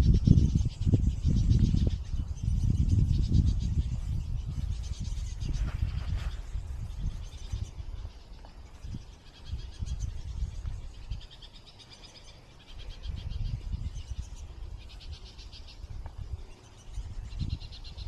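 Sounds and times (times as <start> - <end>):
low microphone rumble: 0.0 - 11.3
birds chattering in trills: 0.0 - 18.0.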